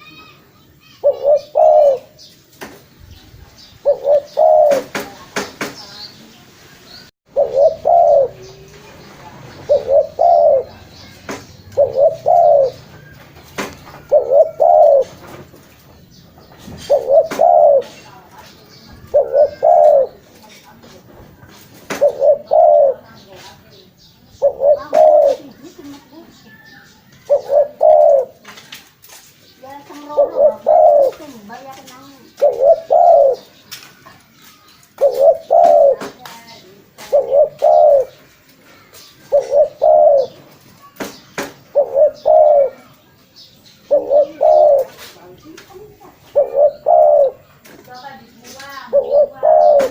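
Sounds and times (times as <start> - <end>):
dove cooing: 0.9 - 2.3, 3.6 - 5.2, 7.3 - 15.6, 16.7 - 18.2, 18.9 - 20.6, 21.8 - 23.3, 24.3 - 28.5, 29.8 - 33.6, 35.0 - 41.0, 41.7 - 43.1, 43.8 - 49.9.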